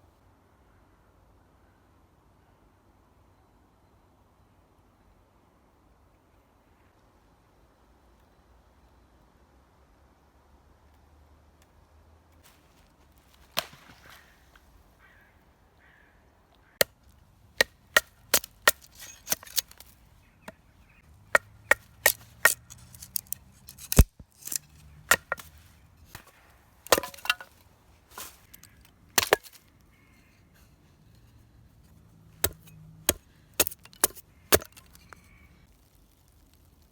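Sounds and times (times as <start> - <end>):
chopping strikes on wood: 17.6 - 19.9, 21.3 - 27.6, 28.2 - 29.6, 32.4 - 35.0.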